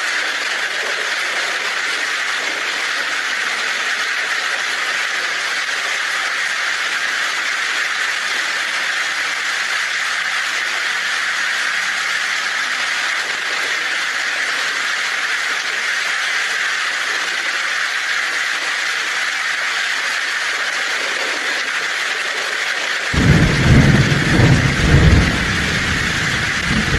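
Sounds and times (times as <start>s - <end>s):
heavy rain on a tin roof: 0.0s - 26.9s.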